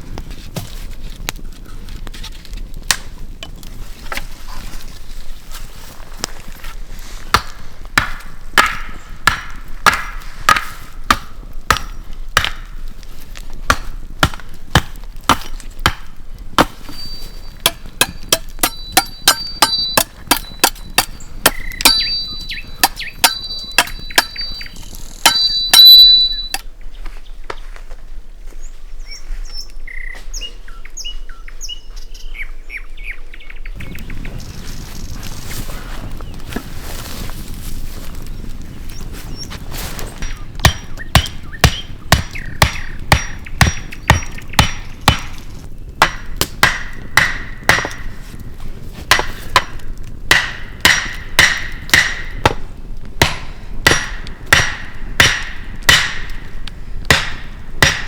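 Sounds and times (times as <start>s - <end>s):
faint bird chirps: 21.6s - 25.0s, 28.6s - 34.5s.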